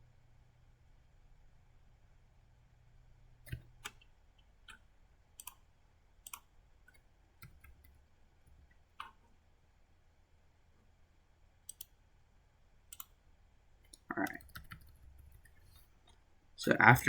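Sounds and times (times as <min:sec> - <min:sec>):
faint low hum: 0:00.0 - 0:17.0
computer mouse clicks: 0:03.4 - 0:04.1, 0:05.4 - 0:05.6, 0:06.2 - 0:08.0, 0:09.0 - 0:09.2, 0:11.7 - 0:12.0, 0:12.9 - 0:13.2, 0:13.9 - 0:16.2.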